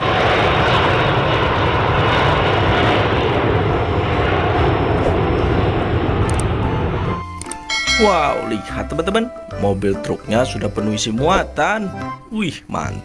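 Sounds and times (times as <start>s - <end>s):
jet engines rushing: 0.0s - 9.5s.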